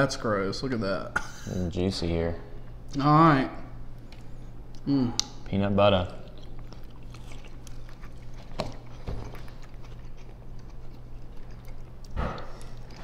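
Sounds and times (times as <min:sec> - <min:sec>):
steady low hum: 0:00.0 - 0:13.0
wet chewing mouth sounds: 0:04.0 - 0:13.0.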